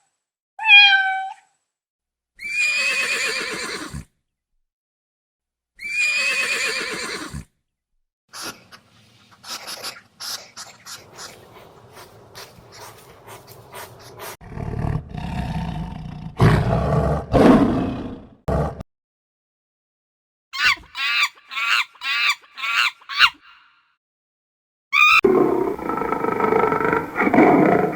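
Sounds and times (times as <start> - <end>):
horse whinnying: 2.4 - 4.1, 5.8 - 7.5
lion roaring: 11.1 - 18.8, 25.2 - 27.9.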